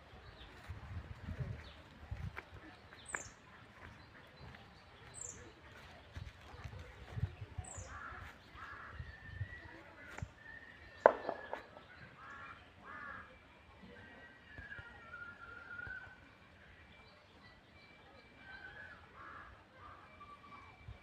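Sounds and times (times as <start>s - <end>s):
birds chirping: 0.0s - 20.9s
harsh caw-like bird calls: 7.8s - 9.0s, 11.1s - 13.3s, 19.2s - 19.6s
sharp knock: 11.0s - 11.7s.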